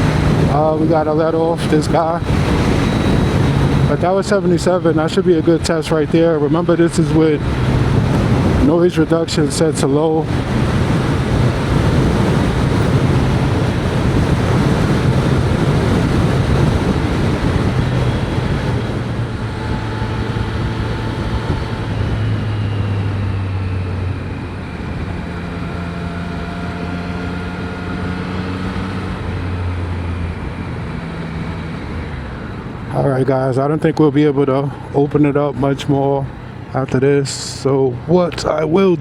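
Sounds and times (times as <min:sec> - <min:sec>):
wind rushing over helmet: 0:00.0 - 0:04.4, 0:06.3 - 0:32.9
motorcycle engine: 0:00.0 - 0:08.7, 0:09.8 - 0:32.9.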